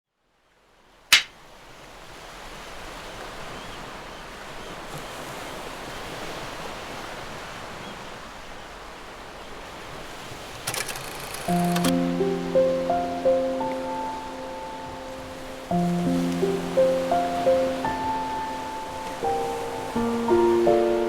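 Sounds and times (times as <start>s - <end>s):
wind: 0.1s - 21.0s
sharp click: 1.1s - 1.3s, 10.6s - 11.9s
sea surf: 2.0s - 21.0s.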